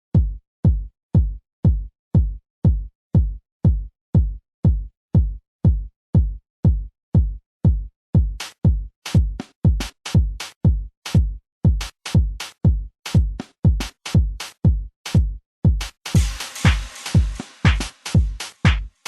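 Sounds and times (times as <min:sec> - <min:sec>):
kick drum four-on-the-floor beat: 0:00.0 - 0:19.0.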